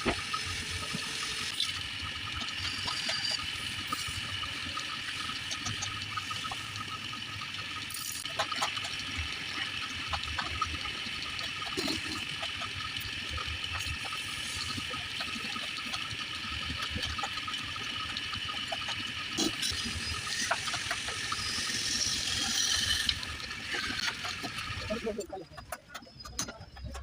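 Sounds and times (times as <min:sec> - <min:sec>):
wood lathe cutting hiss: 0:19.4 - 0:25.2.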